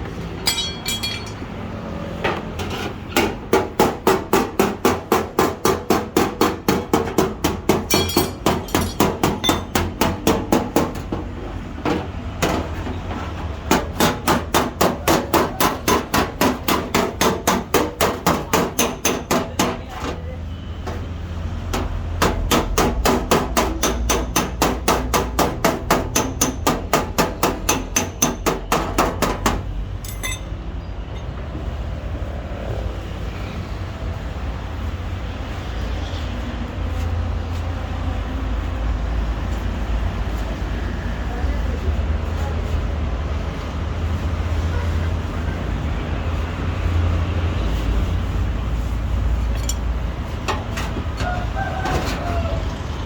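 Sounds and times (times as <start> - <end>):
hammer tapping metal panel: 3.1 - 11.3, 13.7 - 19.9, 21.7 - 30.4.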